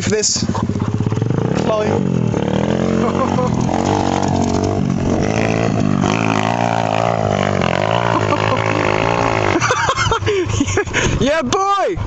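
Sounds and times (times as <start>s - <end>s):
pit bike engine at high revs: 0.0s - 12.0s.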